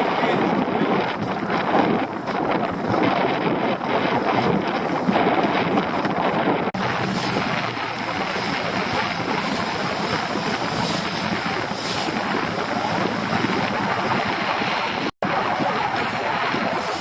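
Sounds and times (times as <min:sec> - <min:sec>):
outboard motor running: 0:00.0 - 0:17.0
water noise: 0:00.0 - 0:17.0
wind rumbling on microphone: 0:00.0 - 0:17.0.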